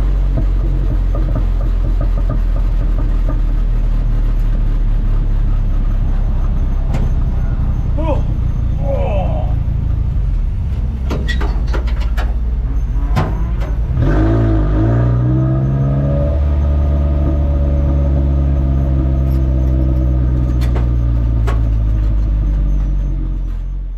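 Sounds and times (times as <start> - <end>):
truck engine idling: 0.0 - 23.9
rattling clicks and knocks: 0.3 - 3.7, 10.7 - 13.9.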